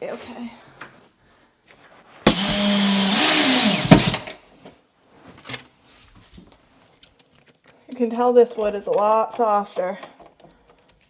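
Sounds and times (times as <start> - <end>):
drill click: 2.3 - 4.4
drill driving screw into wood: 2.3 - 4.4.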